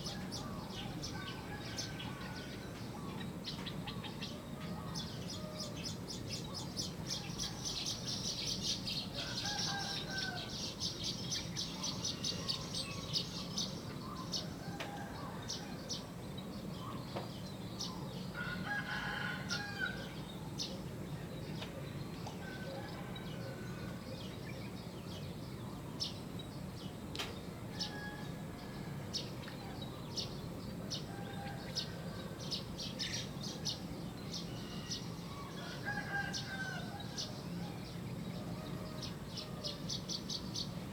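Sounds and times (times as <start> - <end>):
songbirds chirping: 0.0 - 40.9
rooster crowing: 9.2 - 10.7, 18.4 - 20.2, 34.4 - 37.8.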